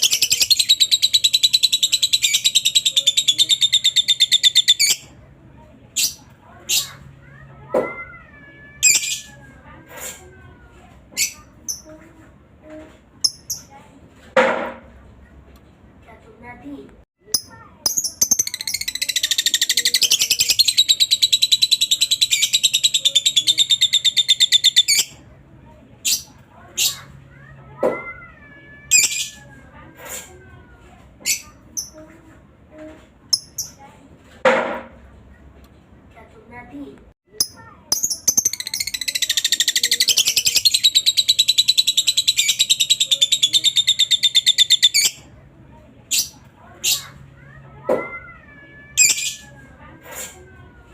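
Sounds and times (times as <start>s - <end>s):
lovebird rapid high chirps: 0.0s - 5.0s, 17.4s - 25.1s, 37.4s - 45.2s.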